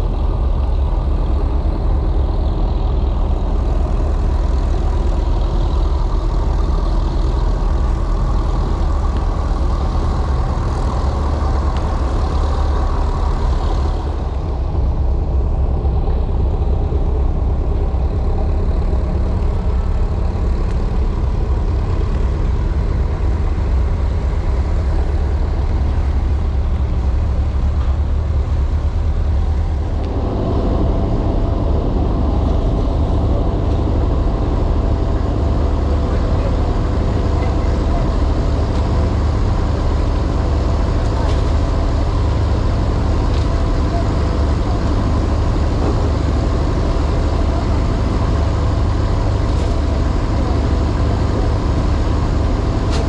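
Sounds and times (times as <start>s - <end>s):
heavy engine droning: 0.0s - 53.0s.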